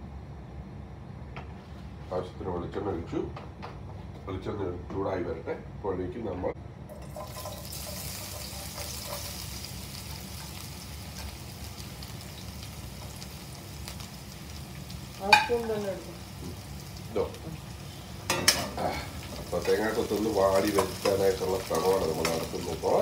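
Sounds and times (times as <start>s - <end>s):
food sizzling in hot oil: 6.9s - 23.0s.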